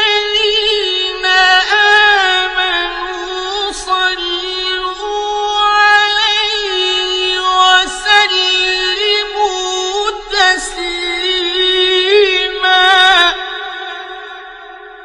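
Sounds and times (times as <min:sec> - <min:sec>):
man chanting recitation: 0:00.0 - 0:14.6.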